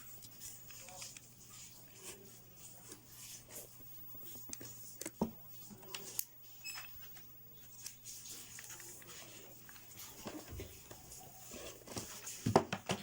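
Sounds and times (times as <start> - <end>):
cardboard pieces tapping and rustling: 11.9 - 13.0.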